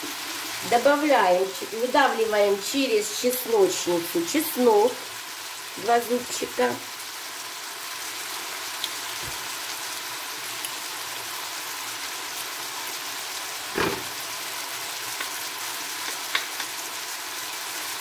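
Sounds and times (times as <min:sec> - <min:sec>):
vegetables sizzling in a frying pan: 0:00.0 - 0:18.0
short dull knock: 0:13.8 - 0:14.1.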